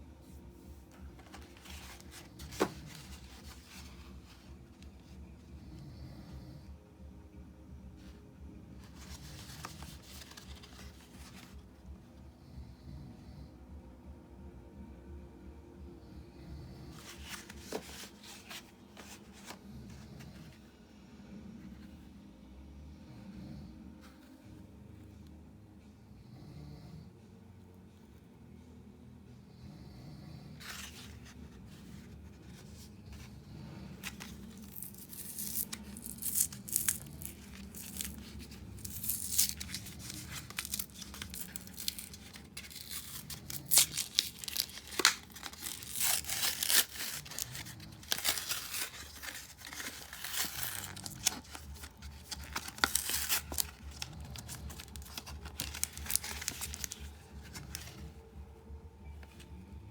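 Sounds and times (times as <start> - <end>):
wrappers tearing and crinkling: 9.0 - 11.5, 34.0 - 58.0.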